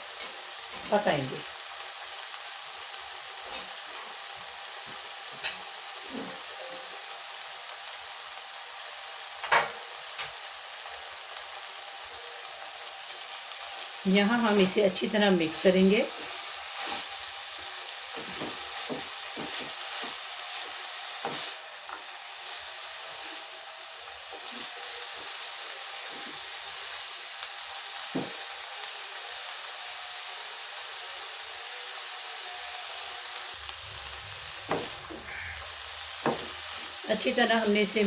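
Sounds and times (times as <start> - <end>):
food sizzling in a hot pan: 0.0 - 38.0
spoon scraping a pan: 18.1 - 23.4.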